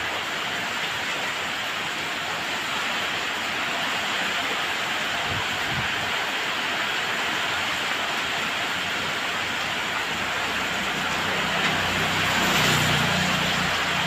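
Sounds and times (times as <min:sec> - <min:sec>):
steady rain: 0:00.0 - 0:14.0
vehicle engine hum: 0:09.4 - 0:14.0.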